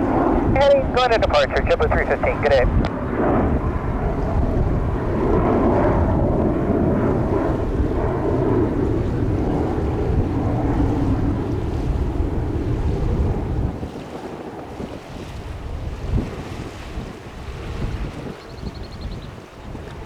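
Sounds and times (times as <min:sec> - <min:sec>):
jet engines roaring: 0:00.0 - 0:14.9
wind buffeting microphone: 0:00.0 - 0:20.0.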